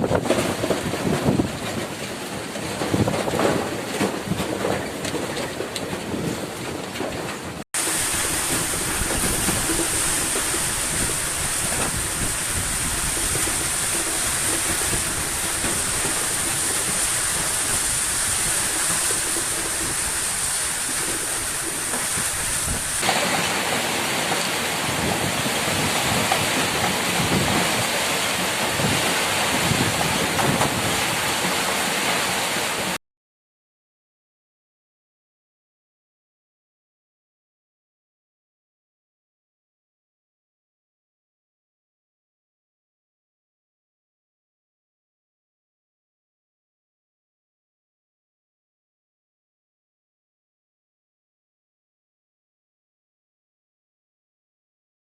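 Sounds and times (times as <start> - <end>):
heavy rain in strong wind: 0.0 - 33.0.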